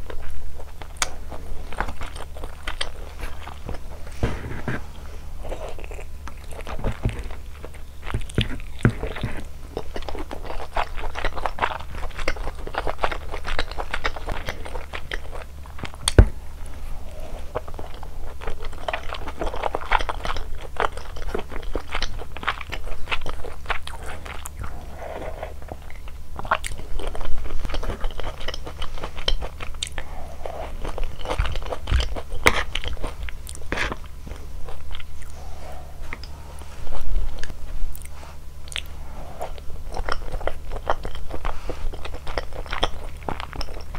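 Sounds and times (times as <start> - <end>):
crunchy chewing: 0.0 - 43.9
low steady hum: 0.0 - 43.9
wet mouth sounds: 37.1 - 43.9.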